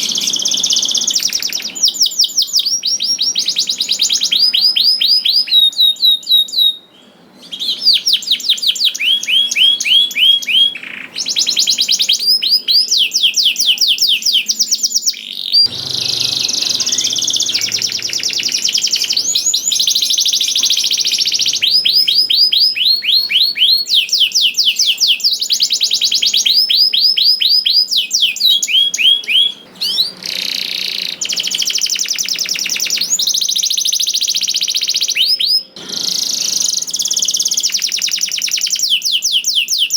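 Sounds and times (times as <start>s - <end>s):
canary singing in rolling trills: 0.0s - 39.9s.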